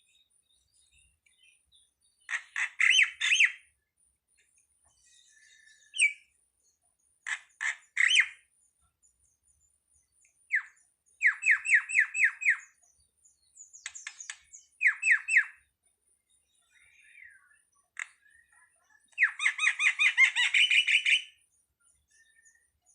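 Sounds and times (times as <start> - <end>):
bird calling: 2.2 - 3.6, 19.2 - 21.4.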